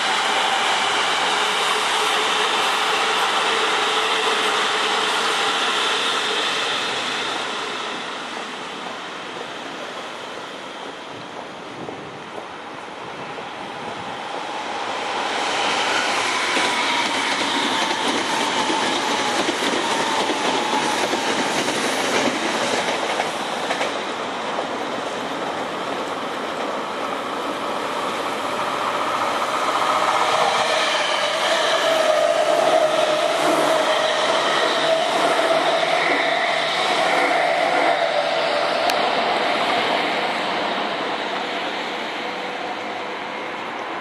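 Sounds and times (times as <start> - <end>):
train wheels rumbling on rails: 0.0 - 44.0
clickety-clack over rail joints: 10.8 - 12.8, 16.4 - 26.8.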